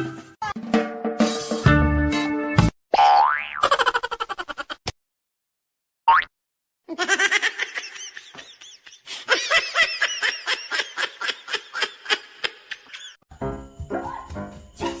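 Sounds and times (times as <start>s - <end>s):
high-pitched laughter: 3.6s - 4.8s, 6.9s - 13.2s.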